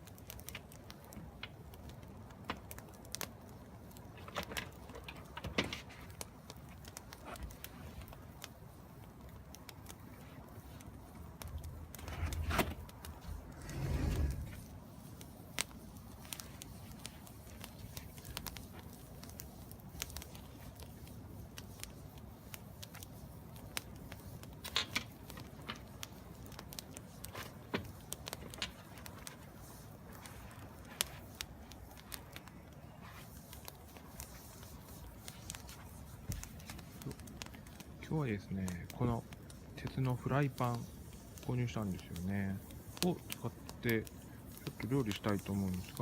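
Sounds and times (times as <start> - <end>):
wood fire crackling and popping: 0.0 - 46.0.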